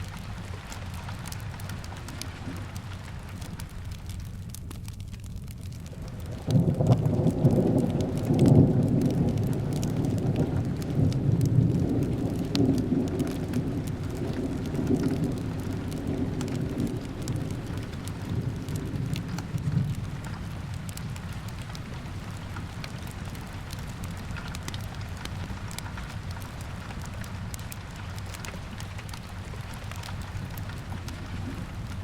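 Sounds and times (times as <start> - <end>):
fireplace crackles: 0.0 - 32.0
steady rain: 0.0 - 32.0
thunder rumble: 5.9 - 27.8.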